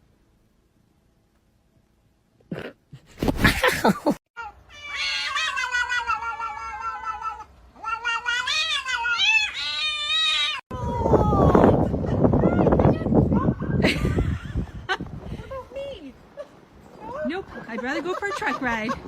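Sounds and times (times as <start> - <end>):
cat yowling: 4.4 - 10.6.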